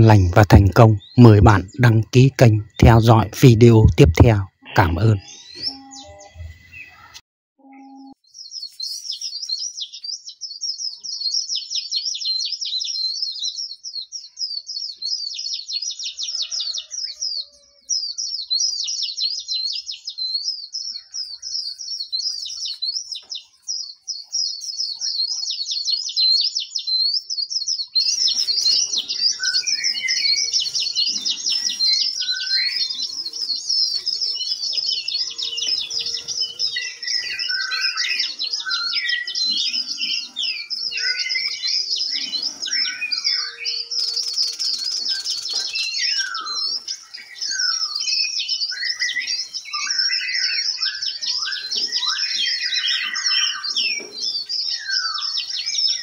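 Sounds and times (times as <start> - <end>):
background noise: 0.0 - 7.2, 7.9 - 56.0
songbirds chirping and twittering: 0.0 - 56.0.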